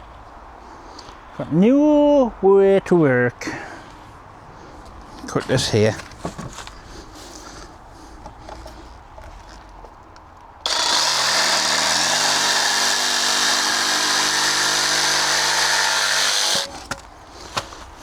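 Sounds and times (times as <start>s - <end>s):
electric saw cutting timber: 10.7s - 17.0s.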